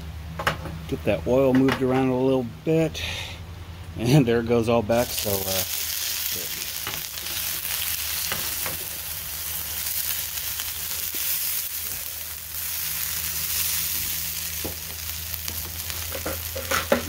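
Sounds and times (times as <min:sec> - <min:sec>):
potatoes sizzling in oil: 0:05.0 - 0:17.0.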